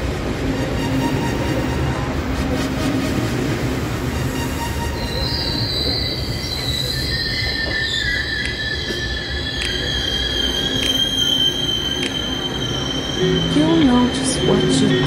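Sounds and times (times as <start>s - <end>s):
train rumbling on rails: 0.0s - 15.0s
high-pitched wheel squeal: 4.2s - 15.0s
lower squealing tone: 4.2s - 15.0s.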